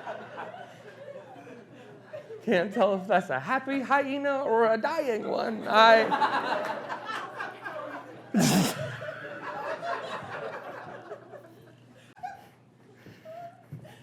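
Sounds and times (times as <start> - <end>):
audience laughing: 0.0 - 2.5, 5.2 - 13.5.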